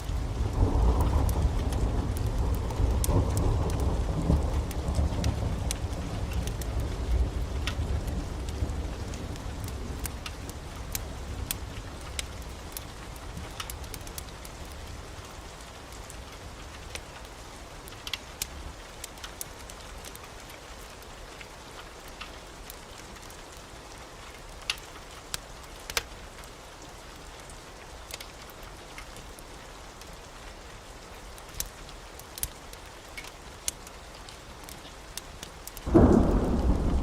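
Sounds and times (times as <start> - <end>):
sharp ticks and pops: 0.0 - 14.8, 17.9 - 20.6, 24.6 - 26.1, 31.4 - 37.0
heavy rain: 0.0 - 37.0
thunder rumble: 35.9 - 37.0.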